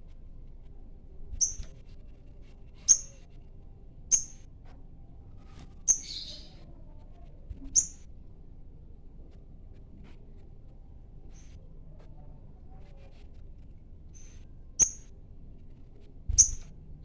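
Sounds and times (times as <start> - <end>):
bird chirping high-pitched: 1.4 - 1.7, 2.7 - 3.2, 4.1 - 4.5, 5.9 - 6.6, 7.7 - 8.1, 14.2 - 15.1, 16.3 - 16.7.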